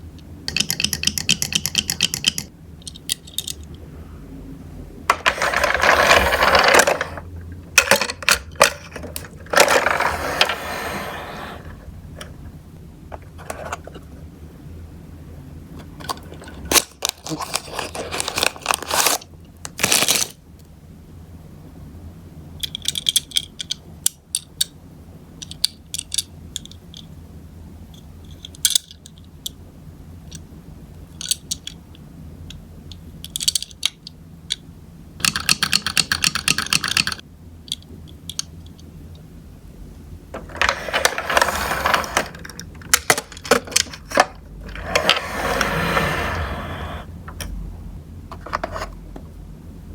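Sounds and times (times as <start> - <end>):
toy cars clattering on plastic: 5.1 - 7.2, 7.8 - 11.7, 40.4 - 47.1.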